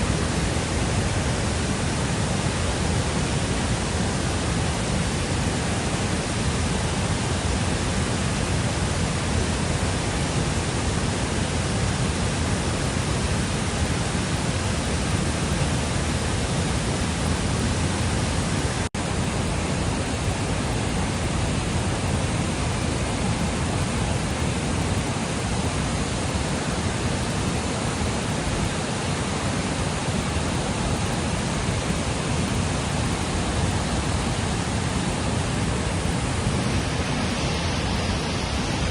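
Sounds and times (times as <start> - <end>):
fast-flowing water rushing: 0.0 - 38.9.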